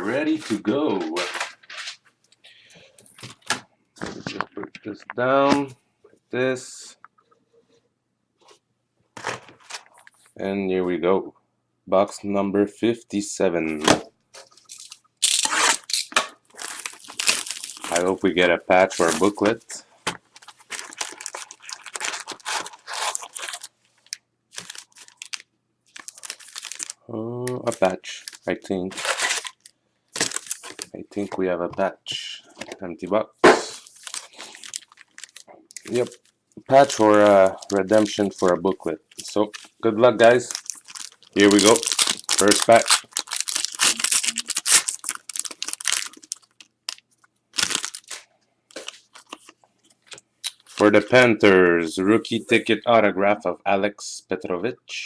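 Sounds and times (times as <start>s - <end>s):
packaging crinkling and tearing: 14.4s - 31.0s, 33.7s - 51.1s.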